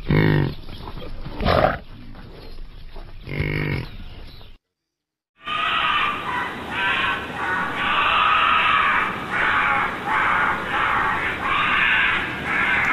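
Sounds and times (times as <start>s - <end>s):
badger calling: 5.5s - 12.9s.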